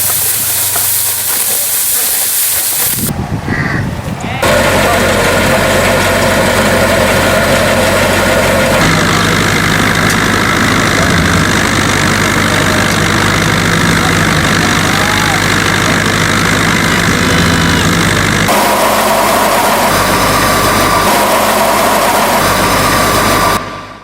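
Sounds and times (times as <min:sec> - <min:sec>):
motor engine idling: 0:04.4 - 0:18.7.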